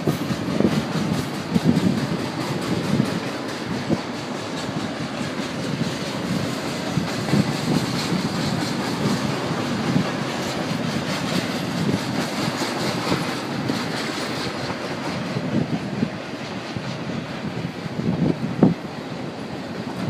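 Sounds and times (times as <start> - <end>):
freight train wheels rumbling on rails: 0.0 - 20.0.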